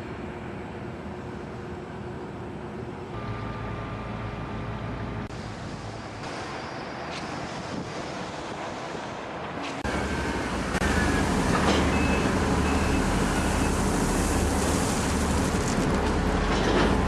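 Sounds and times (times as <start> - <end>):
heavy machinery engine droning: 3.0 - 6.5, 9.8 - 17.0.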